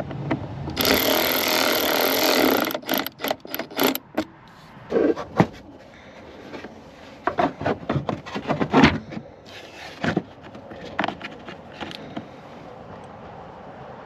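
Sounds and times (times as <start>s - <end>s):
hard objects knocking and scraping: 6.4s - 12.4s.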